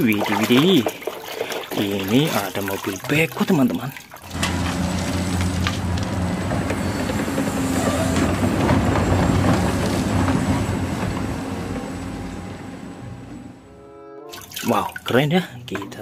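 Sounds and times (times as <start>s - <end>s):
knocks and rumble of earth and rock: 4.3s - 12.4s
excavator diesel engine droning: 4.3s - 13.9s.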